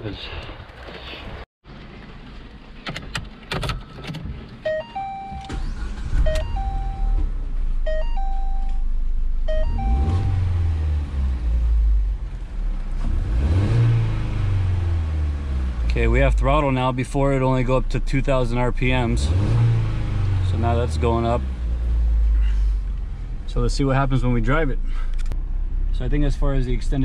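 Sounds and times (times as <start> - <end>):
car engine starting and revving: 4.3 - 27.0
two-note warning chime: 4.7 - 5.6, 6.3 - 7.2, 7.9 - 8.8, 9.5 - 10.5.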